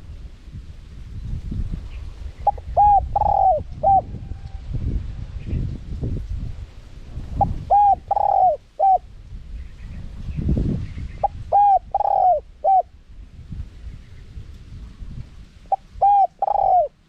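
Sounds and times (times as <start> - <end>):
dove cooing: 2.4 - 4.4, 7.4 - 9.0, 11.2 - 12.9, 15.7 - 17.0.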